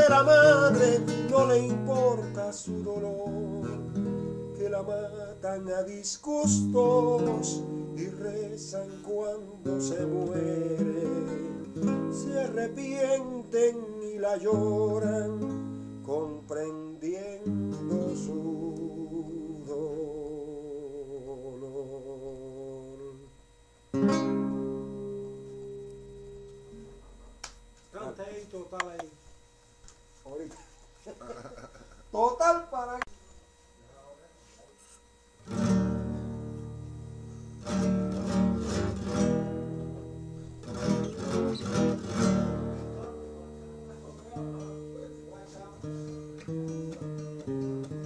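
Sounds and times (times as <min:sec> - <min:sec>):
person singing with vibrato: 0:00.0 - 0:23.4
guitar chord ringing: 0:00.0 - 0:29.0, 0:35.3 - 0:48.0.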